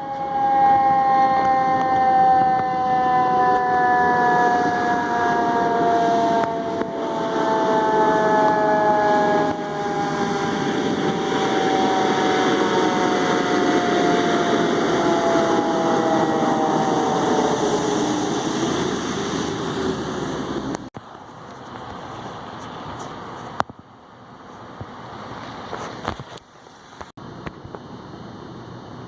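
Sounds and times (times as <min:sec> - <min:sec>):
fire truck siren winding down: 0:00.0 - 0:21.0
engine and road noise: 0:00.0 - 0:29.0.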